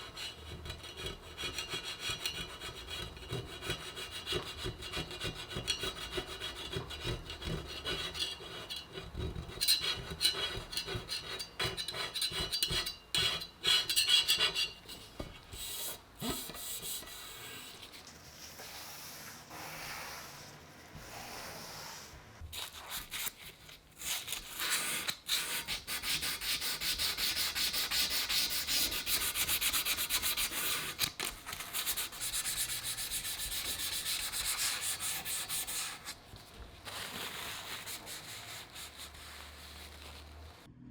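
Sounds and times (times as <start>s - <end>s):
hand sanding strokes: 15.6s - 22.2s, 24.7s - 36.2s, 36.9s - 40.7s.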